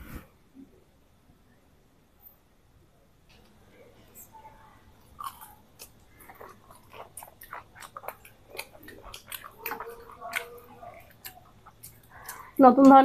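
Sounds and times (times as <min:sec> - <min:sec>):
crunchy food chewing: 0:05.0 - 0:12.6.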